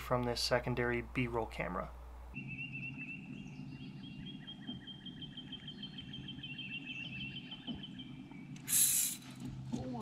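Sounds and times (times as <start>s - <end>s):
low steady hum: 0.0s - 10.0s
songbird trilling: 2.4s - 9.2s.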